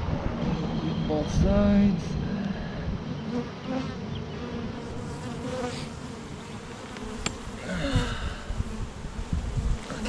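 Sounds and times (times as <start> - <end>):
bees buzzing: 2.2 - 10.0.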